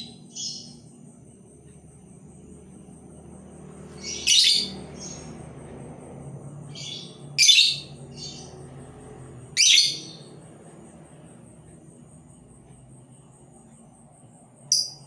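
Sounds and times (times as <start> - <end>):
decoy bird harsh high chirps: 4.0 - 5.2, 9.6 - 10.2.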